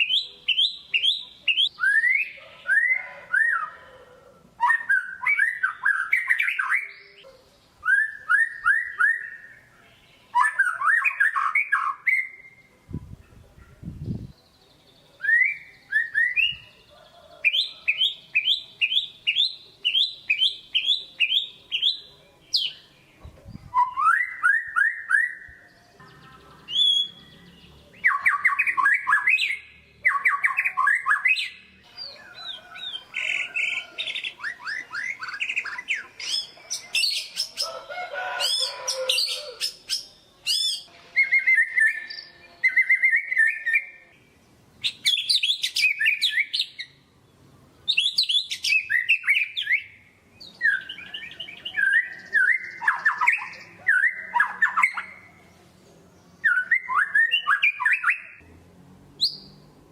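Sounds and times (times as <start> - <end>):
bird singing whistled phrases: 0.0 - 3.8, 4.6 - 7.2, 7.8 - 9.7, 10.3 - 12.7, 15.2 - 16.8, 23.7 - 25.6, 26.7 - 27.3, 39.2 - 44.0, 47.9 - 55.2, 56.4 - 58.4.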